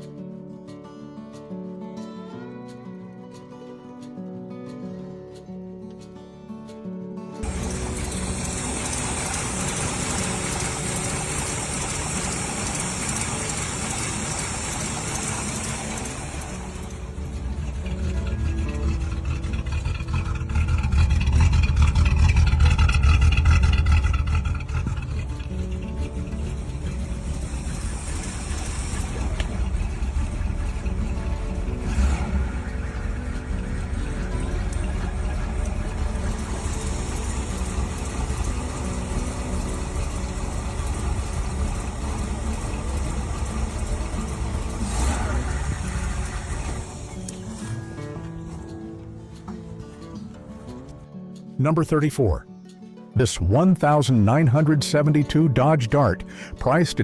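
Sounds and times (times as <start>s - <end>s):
car engine rumbling: 7.4s - 51.0s.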